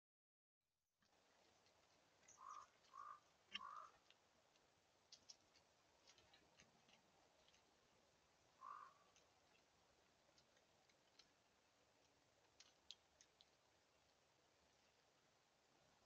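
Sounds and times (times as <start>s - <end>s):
bird calls: 2.2s - 4.1s, 8.5s - 9.7s.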